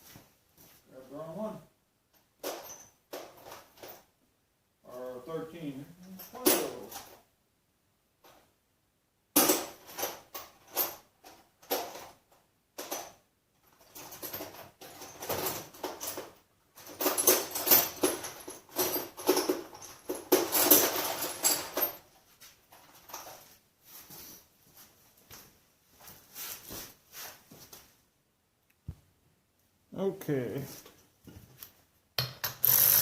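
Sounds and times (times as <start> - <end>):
metal tools clinking: 2.2 - 4.1, 6.0 - 7.2, 12.8 - 23.5.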